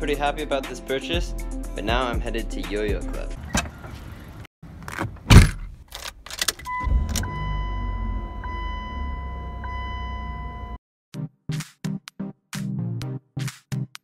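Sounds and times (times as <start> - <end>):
car door clunk: 3.4 - 4.2, 4.8 - 5.8
car engine starting and idling: 3.4 - 10.8.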